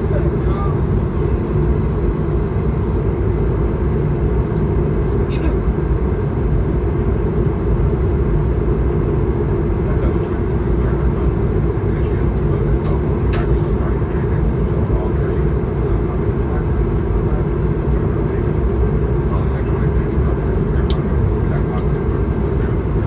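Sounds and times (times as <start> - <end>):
airplane cabin engine rush: 0.0 - 23.0.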